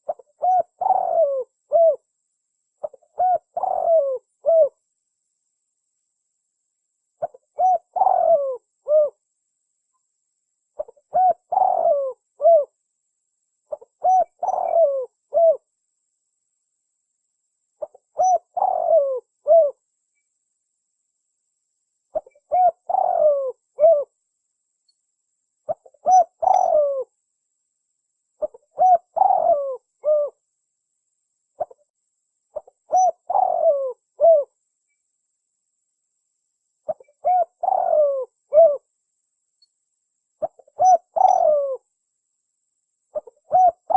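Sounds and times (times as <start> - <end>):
dove cooing: 0.0 - 2.0, 2.8 - 4.8, 7.2 - 9.2, 10.8 - 12.8, 13.7 - 15.7, 17.8 - 19.8, 22.1 - 24.1, 25.7 - 27.1, 28.4 - 30.4, 32.5 - 34.5, 36.9 - 38.9, 40.4 - 41.8, 43.1 - 43.9.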